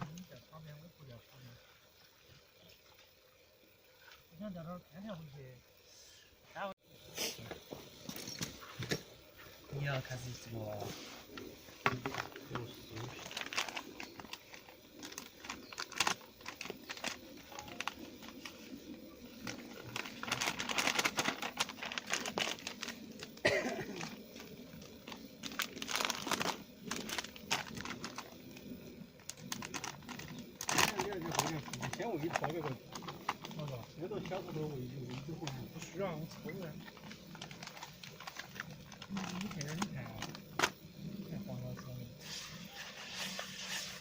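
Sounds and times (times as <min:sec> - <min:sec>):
rustling and crinkling: 0:10.3 - 0:40.8.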